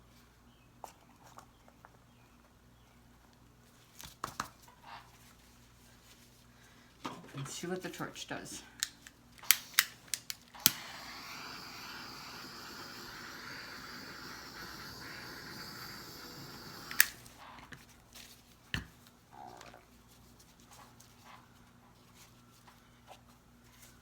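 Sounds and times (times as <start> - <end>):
torch igniter click: 8.8 - 17.3
butane torch hissing: 9.4 - 17.4.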